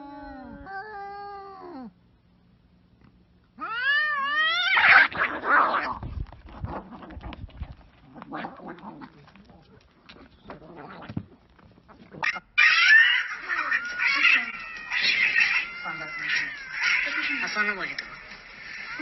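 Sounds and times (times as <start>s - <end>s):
cat yowling: 3.6s - 5.9s, 12.2s - 17.8s
cats screeching and hissing: 3.6s - 7.5s, 10.1s - 19.0s
scuffling: 5.9s - 12.4s, 13.2s - 19.0s.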